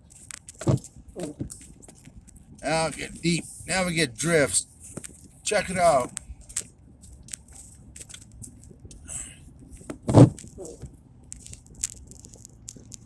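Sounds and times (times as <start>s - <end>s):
tyres crunching through snow: 2.6s - 6.2s.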